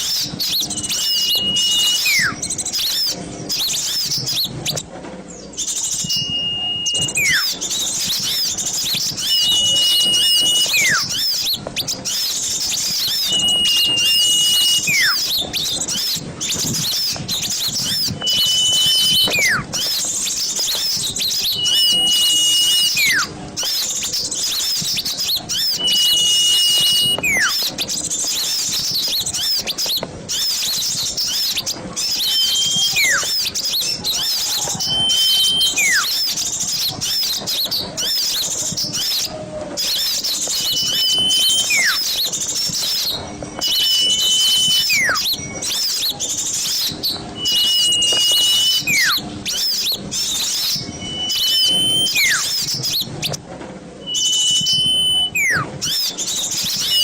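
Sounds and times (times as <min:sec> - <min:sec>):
small birds chattering: 0:00.0 - 0:53.4, 0:54.0 - 0:57.0
whistled note sliding downward: 0:00.1 - 0:04.4, 0:05.6 - 0:23.8, 0:31.3 - 0:33.5, 0:34.2 - 0:36.2, 0:39.8 - 0:53.1, 0:54.0 - 0:57.0.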